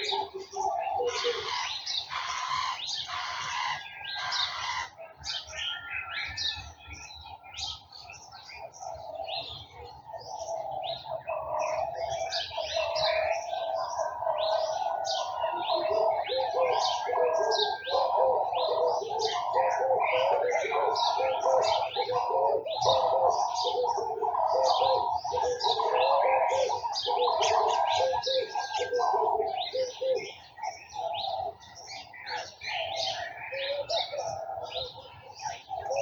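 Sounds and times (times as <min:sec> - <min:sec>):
dove cooing: 0:00.0 - 0:36.0
garden birds chirping: 0:00.0 - 0:36.0.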